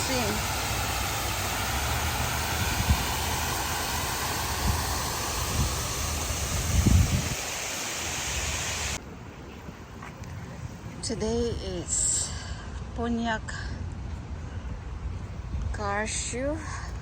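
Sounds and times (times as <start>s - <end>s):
steady rushing noise: 0.0s - 9.0s.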